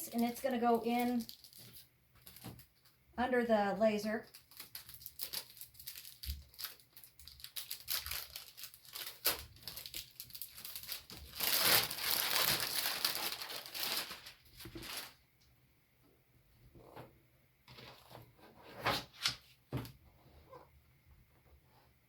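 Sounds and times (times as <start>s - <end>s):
plastic packaging crinkling: 0.1s - 2.9s, 4.2s - 15.2s.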